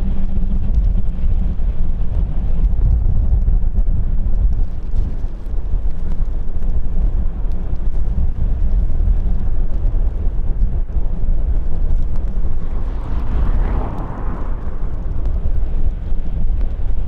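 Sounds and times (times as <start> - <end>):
wind buffeting microphone: 0.0 - 17.0
jet engines rumbling: 9.5 - 17.0.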